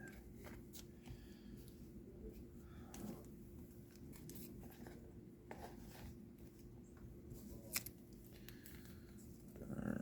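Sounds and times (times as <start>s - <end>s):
trading cards rustling and clicking: 2.9s - 9.3s.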